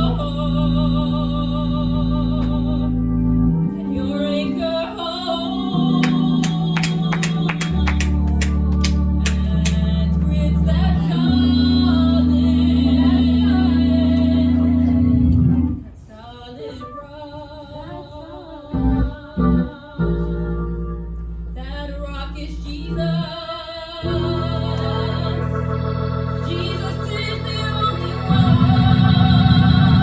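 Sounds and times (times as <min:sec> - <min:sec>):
instruments holding low notes: 0:00.0 - 0:15.9, 0:24.0 - 0:30.0
gospel singing: 0:00.0 - 0:20.9, 0:21.6 - 0:30.0.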